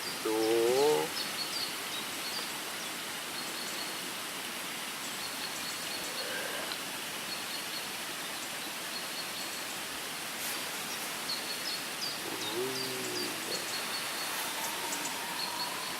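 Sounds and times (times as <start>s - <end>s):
outdoor ambient hiss: 0.0s - 15.9s
faint high bird chirps: 11.3s - 15.9s.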